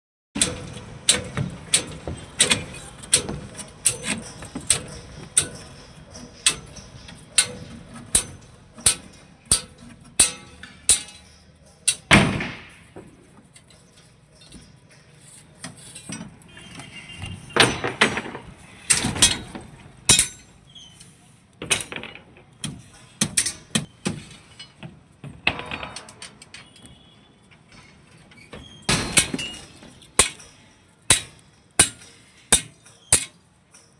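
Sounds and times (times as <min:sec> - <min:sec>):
hammer strikes: 0:00.4 - 0:11.3, 0:17.6 - 0:20.5, 0:28.9 - 0:33.4.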